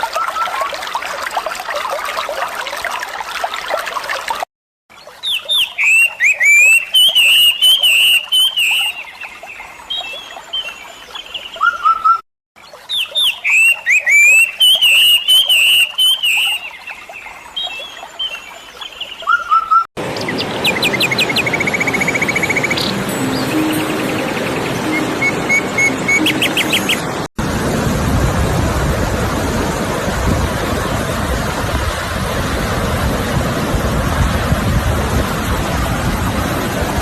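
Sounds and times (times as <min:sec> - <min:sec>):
songbird whistled chirps: 0:05.2 - 0:09.1, 0:12.9 - 0:16.7, 0:19.3 - 0:27.1
fast even bird trill: 0:20.6 - 0:27.1.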